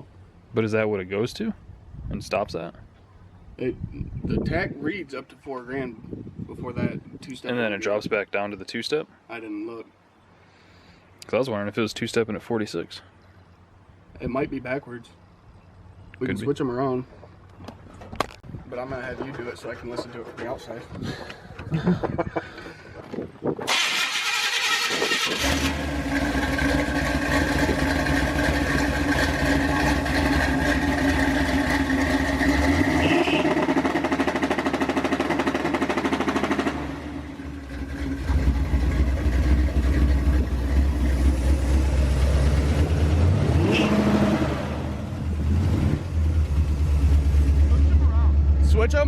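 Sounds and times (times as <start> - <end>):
truck engine on rev limiter: 24.1 - 49.0.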